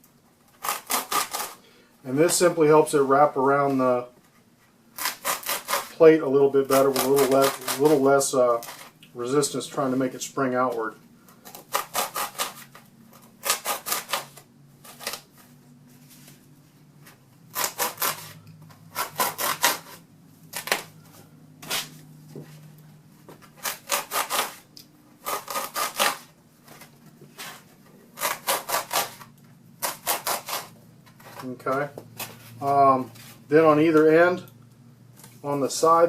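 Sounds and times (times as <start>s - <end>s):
blade sawing through foam: 19.0s - 20.0s, 23.6s - 24.6s, 25.2s - 26.3s, 28.2s - 29.2s, 29.8s - 30.7s.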